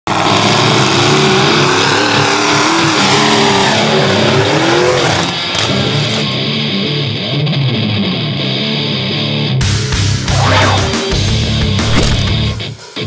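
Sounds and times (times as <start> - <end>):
truck engine revving hard: 0.0 - 6.7.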